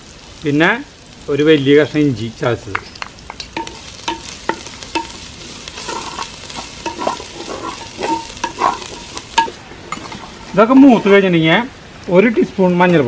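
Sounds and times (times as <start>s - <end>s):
frying sizzle in hot oil: 0.0s - 13.0s
wooden spoon scraping clay pot: 3.6s - 11.2s.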